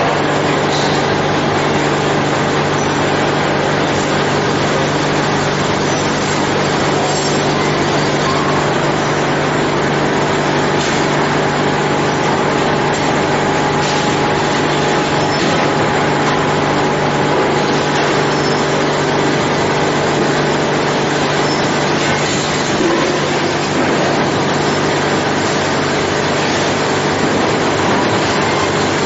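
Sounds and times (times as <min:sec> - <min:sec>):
factory machinery running: 0:00.0 - 0:29.0.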